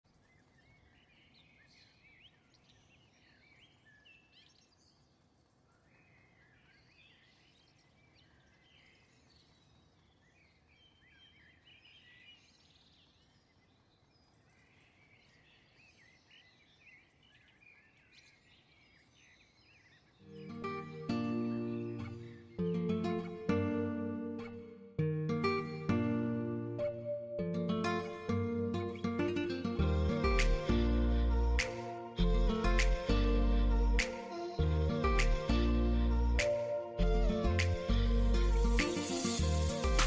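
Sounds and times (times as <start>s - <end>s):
faint birds chirping: 0.0s - 34.0s
low background noise: 0.0s - 40.0s
acoustic guitar music: 20.2s - 40.0s.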